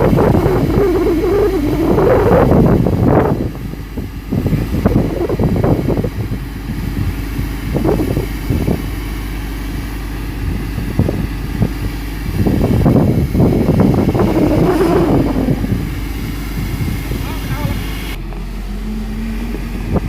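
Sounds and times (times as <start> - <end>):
fire engine motor humming: 0.0 - 20.0
short noises: 13.7 - 17.6.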